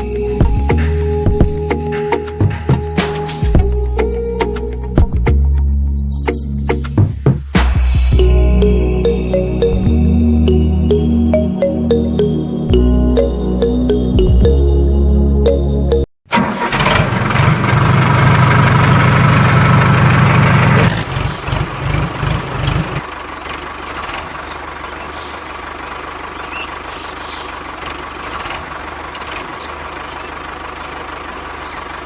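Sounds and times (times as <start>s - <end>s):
tractor engine running: 16.3s - 32.0s.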